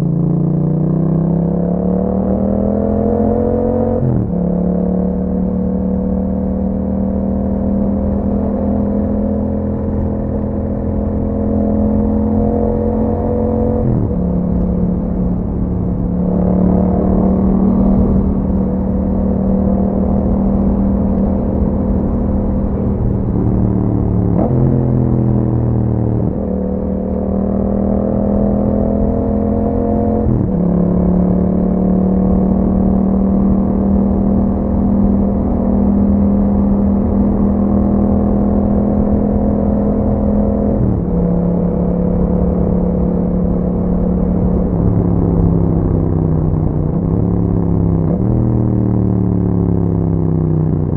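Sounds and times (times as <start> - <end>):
motorcycle engine while riding: 0.0 - 50.9.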